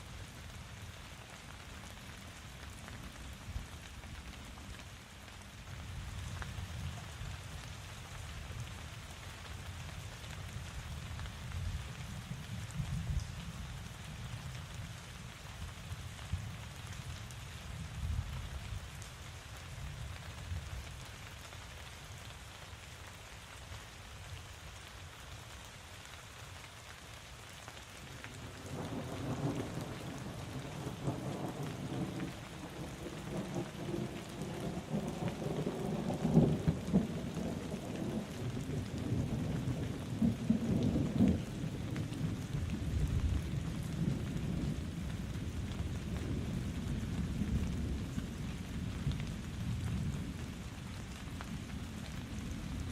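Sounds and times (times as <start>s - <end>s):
steady rainfall: 0.0s - 52.9s.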